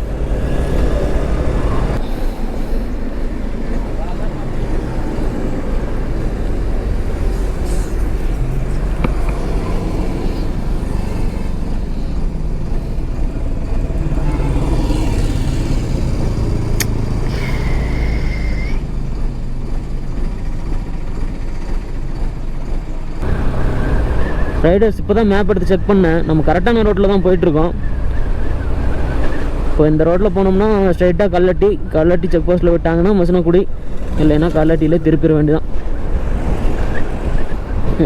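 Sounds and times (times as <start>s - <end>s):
motorcycle engine: 0.0s - 29.8s
road traffic rumble: 0.0s - 38.0s
sharp click: 16.8s - 17.0s
steady high tone: 17.2s - 19.3s.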